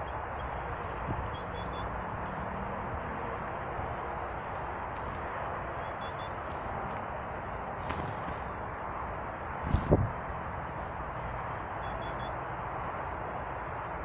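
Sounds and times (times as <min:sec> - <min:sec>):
small birds chirping: 0:00.0 - 0:02.6, 0:04.4 - 0:06.6, 0:11.2 - 0:12.4
steady rushing noise: 0:00.0 - 0:11.8.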